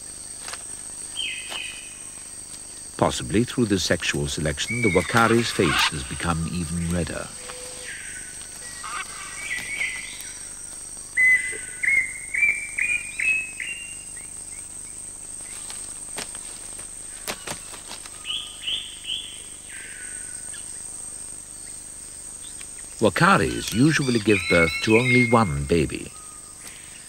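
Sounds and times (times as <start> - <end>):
bird whistling rising notes: 23.6 - 26.5.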